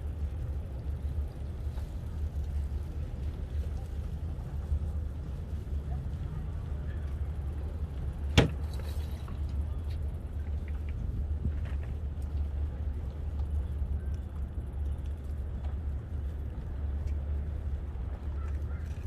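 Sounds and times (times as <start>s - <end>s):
wind buffeting microphone: 0.0s - 19.0s
faint ticks: 9.2s - 17.5s.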